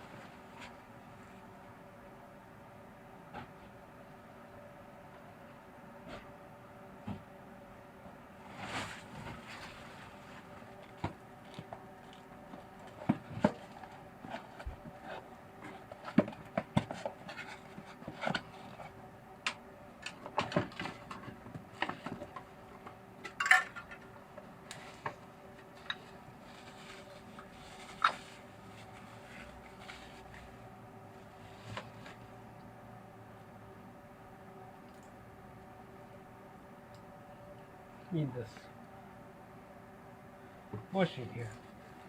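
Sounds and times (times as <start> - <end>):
faint steady hum: 0.0 - 42.0
metal clatter: 23.4 - 24.0
metal tools clinking: 23.4 - 24.0.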